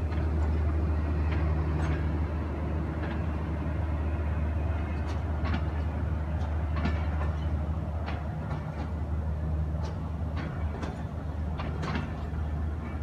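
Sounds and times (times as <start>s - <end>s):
train coaches rolling past: 0.0s - 13.0s
wheels clicking on rails: 4.6s - 13.0s.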